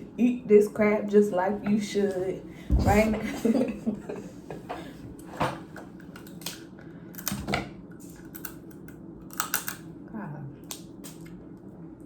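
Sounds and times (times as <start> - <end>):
crab shells cracking: 8.3 - 9.8.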